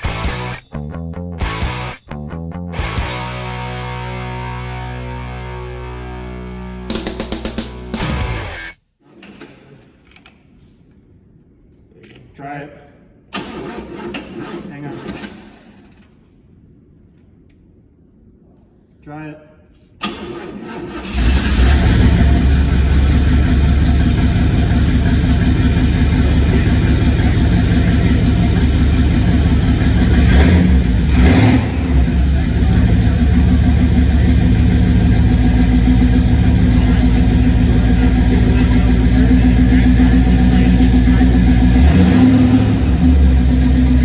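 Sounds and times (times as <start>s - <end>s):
truck engine cranking and running: 13.3s - 16.2s, 20.0s - 44.0s.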